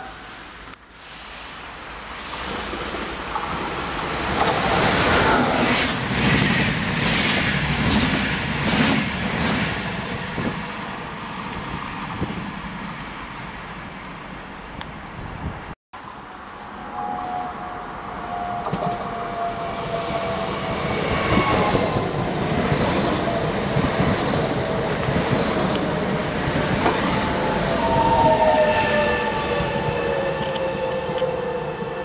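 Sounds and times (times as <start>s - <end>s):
train wheels rumbling on rail: 2.2s - 13.2s, 18.4s - 32.0s.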